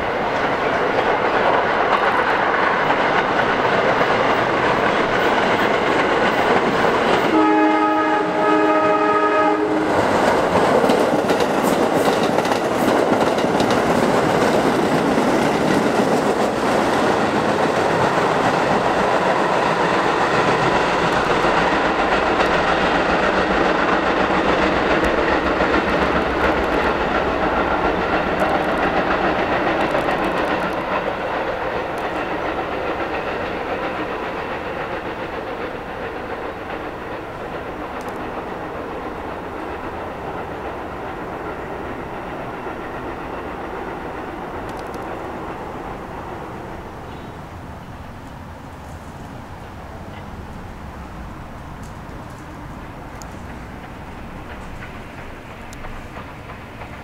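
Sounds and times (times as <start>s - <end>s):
subway train passing: 0.0s - 57.0s
train wheel clatter: 0.0s - 57.0s.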